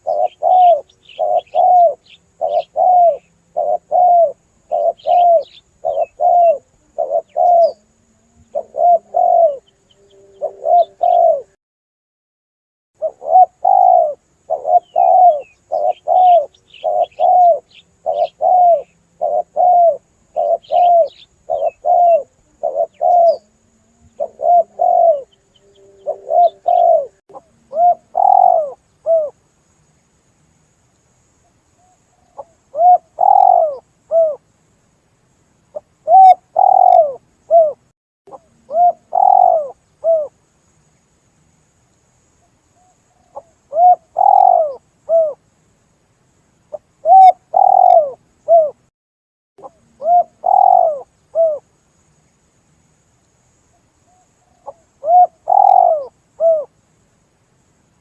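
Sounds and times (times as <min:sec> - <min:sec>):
small birds chirping: 0:00.0 - 0:11.5, 0:13.0 - 0:30.3, 0:30.9 - 0:34.4, 0:35.7 - 0:41.2, 0:41.9 - 0:45.4, 0:46.7 - 0:48.9, 0:49.6 - 0:51.6, 0:53.2 - 0:56.7
dove cooing: 0:00.0 - 0:11.6, 0:13.0 - 0:29.4, 0:31.8 - 0:34.4, 0:35.8 - 0:40.4, 0:42.8 - 0:45.4, 0:46.7 - 0:48.9, 0:49.6 - 0:51.6, 0:54.1 - 0:56.7.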